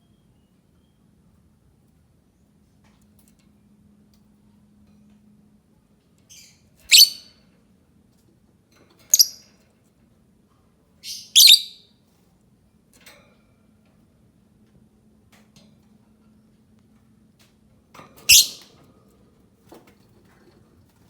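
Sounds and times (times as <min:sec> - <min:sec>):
lovebird shrill calls: 0:06.3 - 0:07.2, 0:09.1 - 0:09.4, 0:11.0 - 0:11.8, 0:18.3 - 0:18.6.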